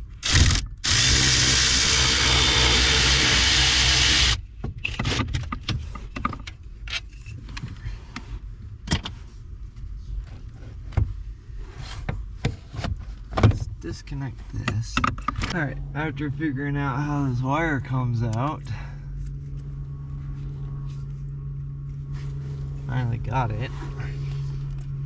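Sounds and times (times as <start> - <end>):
power tool running: 0.0 - 4.4.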